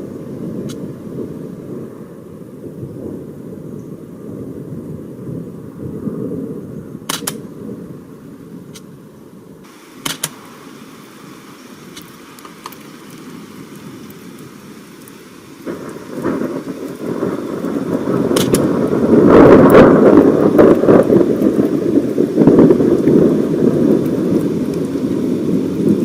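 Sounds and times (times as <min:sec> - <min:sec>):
rain falling: 0:00.0 - 0:26.0
thunder rumbling: 0:00.0 - 0:26.0
sharp clicks: 0:07.1 - 0:07.5, 0:10.0 - 0:10.6, 0:11.9 - 0:13.8, 0:18.3 - 0:18.7.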